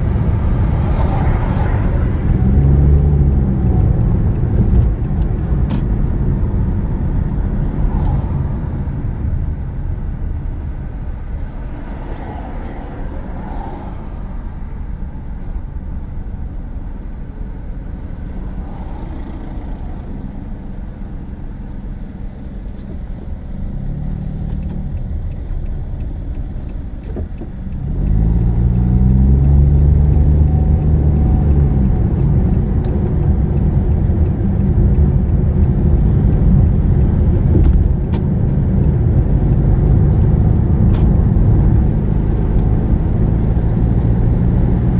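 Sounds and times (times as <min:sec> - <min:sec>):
car engine: 0:00.0 - 0:44.9
road noise inside car: 0:00.0 - 0:44.9.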